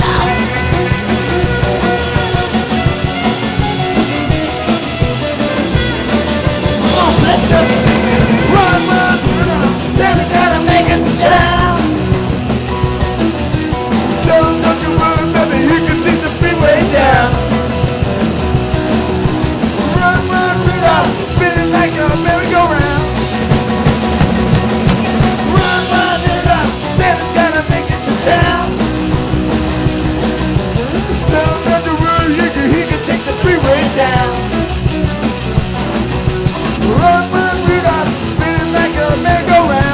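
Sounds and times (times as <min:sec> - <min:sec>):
person singing: 0:00.0 - 0:01.3, 0:06.7 - 0:12.1, 0:14.2 - 0:17.6, 0:19.8 - 0:23.2, 0:25.4 - 0:28.9, 0:30.9 - 0:34.6, 0:36.5 - 0:39.9
loud rock band music: 0:00.0 - 0:39.9.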